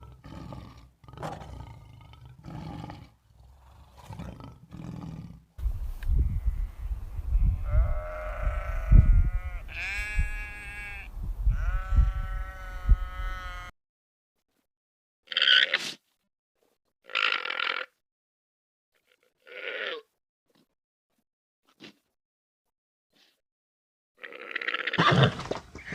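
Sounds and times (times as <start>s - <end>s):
long drawn-out animal calls: 15.3s - 15.8s, 17.0s - 18.0s, 19.0s - 20.1s, 24.2s - 25.2s.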